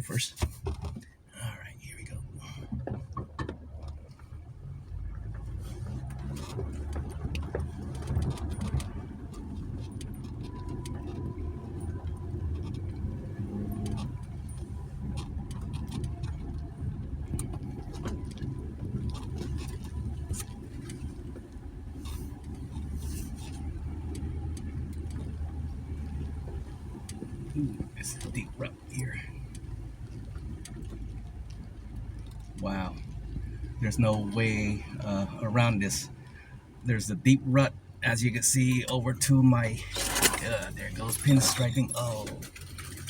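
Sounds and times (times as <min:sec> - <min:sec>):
engine and tyres droning: 0:00.0 - 0:43.0.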